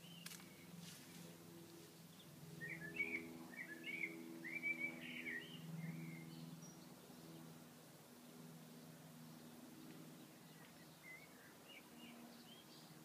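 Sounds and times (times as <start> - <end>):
songbird warbled chirps: 2.1 - 6.9, 10.2 - 12.9.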